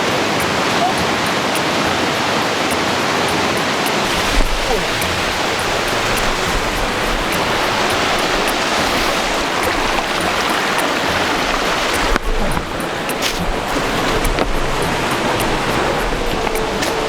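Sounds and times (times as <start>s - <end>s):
mountain stream rushing: 0.0s - 17.0s
wind rumble on microphone: 4.0s - 17.0s.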